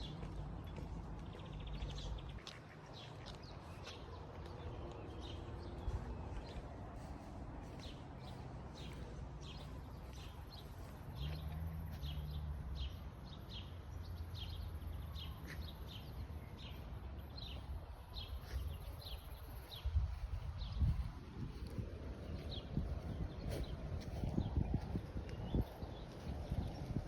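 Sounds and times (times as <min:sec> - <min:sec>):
birds chirping: 0:00.0 - 0:27.0
steady low rumble: 0:16.6 - 0:27.0.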